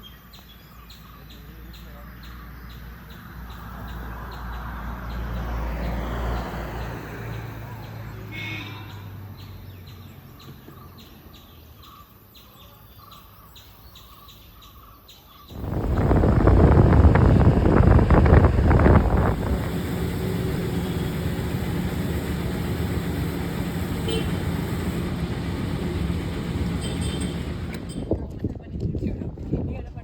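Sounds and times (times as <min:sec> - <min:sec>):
birds chirping: 0:08.8 - 0:28.1
wind noise from motorbike ride: 0:15.5 - 0:30.0.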